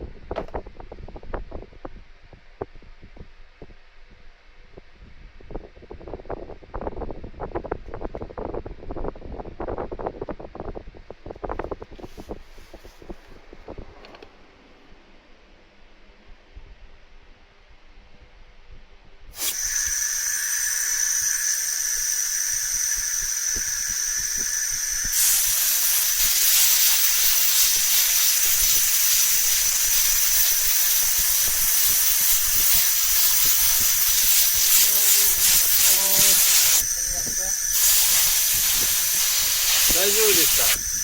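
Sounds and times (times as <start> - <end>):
gas hissing from nozzle: 19.3 - 41.0
thin high whistle: 19.4 - 41.0.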